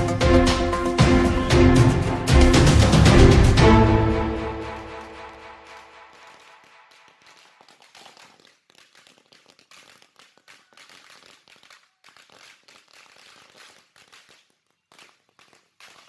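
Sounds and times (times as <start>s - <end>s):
faint firecrackers popping: 4.6s - 16.0s.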